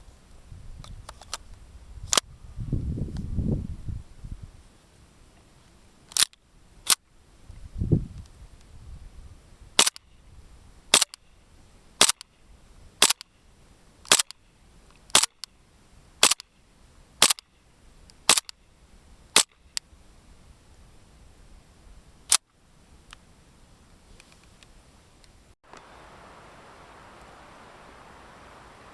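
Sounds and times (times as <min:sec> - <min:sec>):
airsoft pistol gas shots: 0:09.8 - 0:10.0, 0:10.9 - 0:11.2, 0:13.0 - 0:13.2, 0:14.1 - 0:14.3, 0:15.2 - 0:15.4, 0:16.2 - 0:16.4
sharp click: 0:09.8 - 0:10.1, 0:11.0 - 0:11.2, 0:12.0 - 0:12.3, 0:13.0 - 0:13.3, 0:14.1 - 0:14.4, 0:15.1 - 0:15.5, 0:16.2 - 0:16.5, 0:17.2 - 0:17.4, 0:18.1 - 0:18.6.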